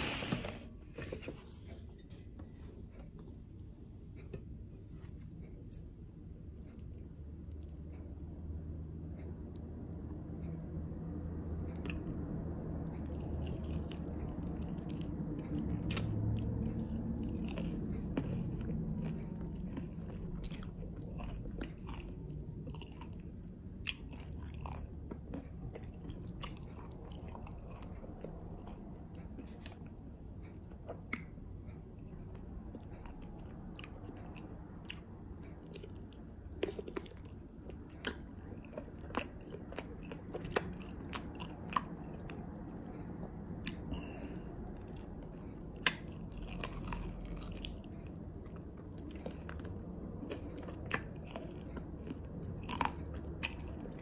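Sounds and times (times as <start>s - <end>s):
wet chewing mouth sounds: 2.8s - 54.0s.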